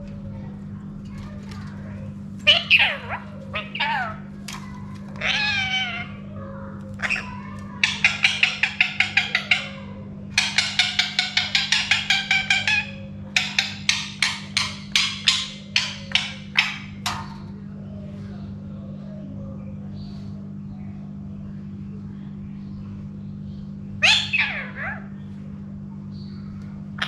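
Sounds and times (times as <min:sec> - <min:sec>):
steady low hum: 0:00.0 - 0:27.0
parakeet calling: 0:02.4 - 0:04.4, 0:05.2 - 0:17.4, 0:24.0 - 0:25.3
parakeet chattering: 0:02.4 - 0:17.4, 0:24.0 - 0:25.1.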